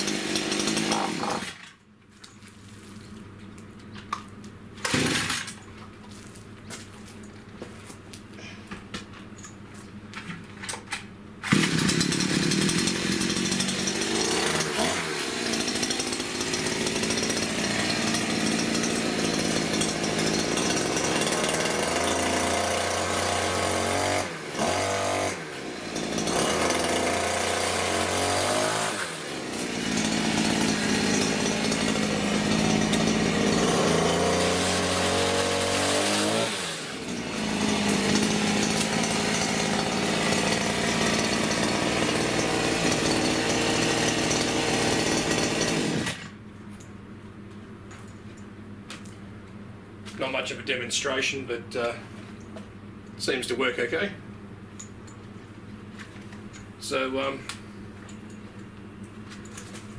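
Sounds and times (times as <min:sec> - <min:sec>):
chainsaw engine revving: 0:00.0 - 0:01.7, 0:04.8 - 0:05.5, 0:11.4 - 0:46.4.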